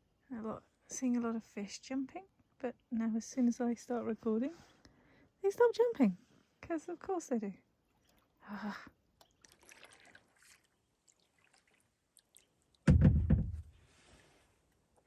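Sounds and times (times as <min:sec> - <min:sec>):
water dripping and trickling: 0:07.9 - 0:08.5, 0:09.1 - 0:12.9.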